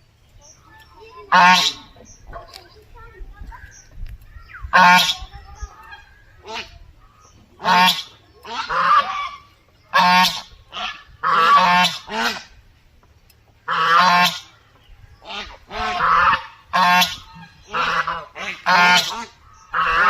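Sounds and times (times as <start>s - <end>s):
duck quacking loudly: 1.3s - 2.0s, 4.7s - 6.8s, 7.6s - 12.5s, 13.7s - 14.5s, 15.2s - 20.0s.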